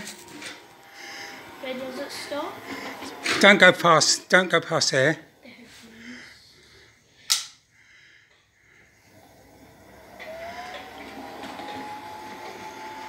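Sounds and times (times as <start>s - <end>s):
model locomotive motor whining: 0.0s - 5.4s, 8.3s - 13.0s
sharp click: 7.3s - 7.6s.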